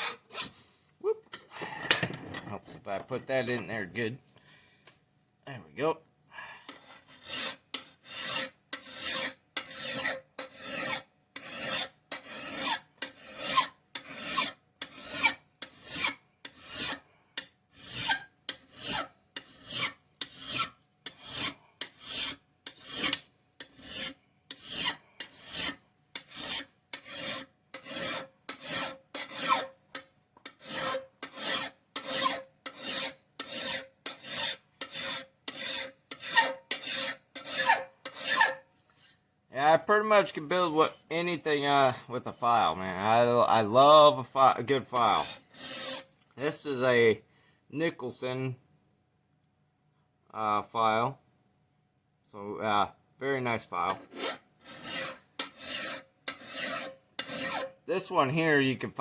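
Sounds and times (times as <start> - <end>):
file scraping on steel: 0.0 - 0.6, 6.7 - 39.2, 45.0 - 46.2, 53.9 - 57.8.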